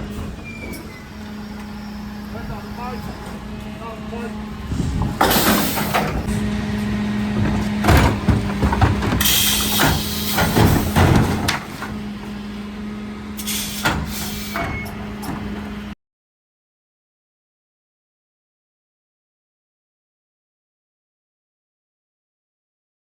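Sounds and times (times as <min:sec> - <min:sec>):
bins and lifter clanking: 0:00.0 - 0:15.9
truck engine humming: 0:00.0 - 0:16.0
air hissing: 0:09.2 - 0:11.0, 0:13.4 - 0:14.7.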